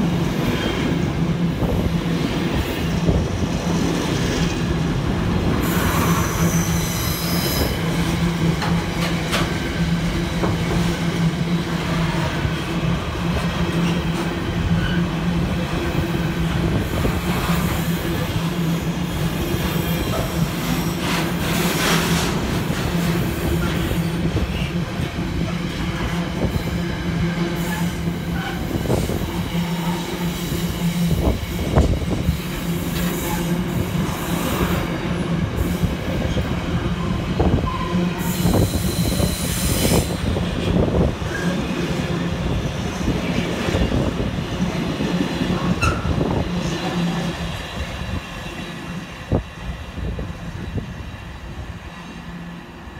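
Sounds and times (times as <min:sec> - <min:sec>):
train wheels rumbling on rail: 0:00.0 - 0:52.9
train wheel squeals: 0:05.6 - 0:08.2, 0:13.7 - 0:15.3, 0:16.7 - 0:25.0, 0:27.4 - 0:34.9, 0:35.5 - 0:41.8, 0:45.6 - 0:46.4.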